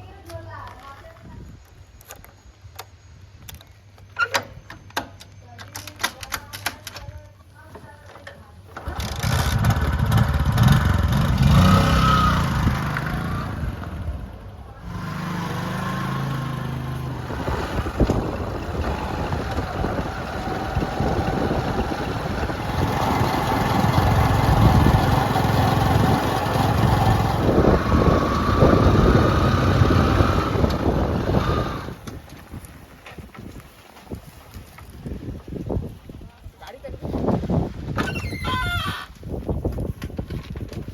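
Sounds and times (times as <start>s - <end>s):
heavy diesel engine working: 8.8s - 32.0s.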